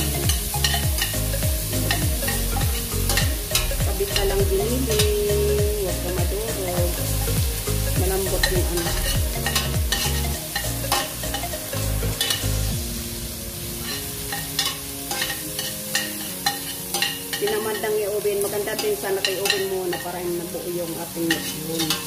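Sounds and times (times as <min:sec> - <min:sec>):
onions sizzling in oil: 0:00.0 - 0:22.0
spoon clinking against pot: 0:00.4 - 0:04.3, 0:08.4 - 0:11.5, 0:12.2 - 0:12.6, 0:14.0 - 0:17.8, 0:21.3 - 0:22.0.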